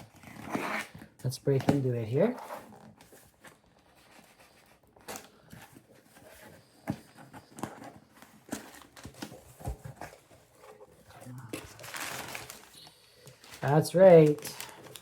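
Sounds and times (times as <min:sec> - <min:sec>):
cardboard package being opened: 0:07.4 - 0:15.0.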